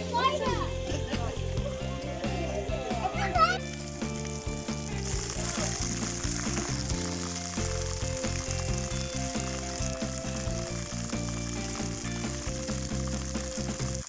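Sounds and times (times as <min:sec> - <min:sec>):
background music low notes: 0:00.0 - 0:14.0
waterfall rushing: 0:03.2 - 0:14.0.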